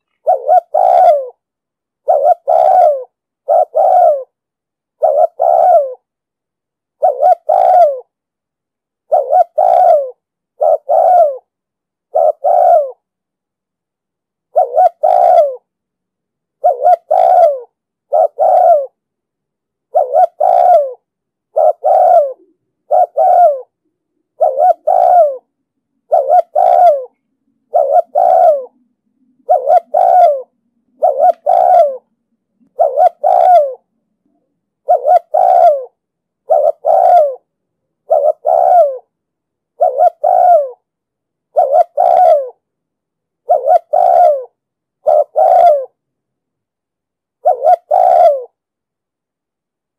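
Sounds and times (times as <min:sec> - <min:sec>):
dove cooing: 0:00.0 - 0:01.4, 0:02.0 - 0:04.4, 0:05.0 - 0:06.1, 0:07.0 - 0:08.1, 0:09.0 - 0:11.5, 0:12.1 - 0:13.0, 0:14.5 - 0:15.7, 0:16.6 - 0:19.0, 0:19.9 - 0:39.1, 0:39.8 - 0:40.9, 0:41.5 - 0:42.6, 0:43.4 - 0:46.0, 0:47.4 - 0:48.6.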